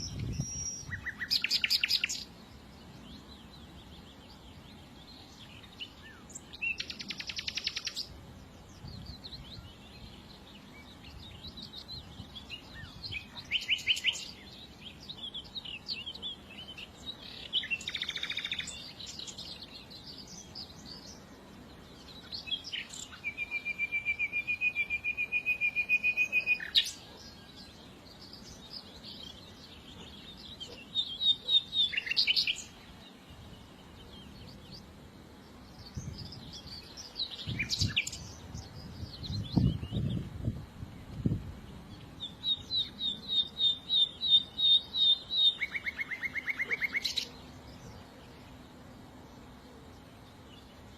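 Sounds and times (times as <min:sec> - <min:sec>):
songbirds singing: 0:00.0 - 0:50.9.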